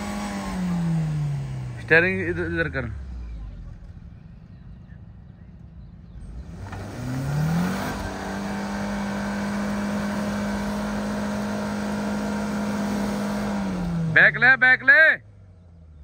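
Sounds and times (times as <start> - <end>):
car engine revving hard: 0.0 - 3.0, 6.2 - 14.7.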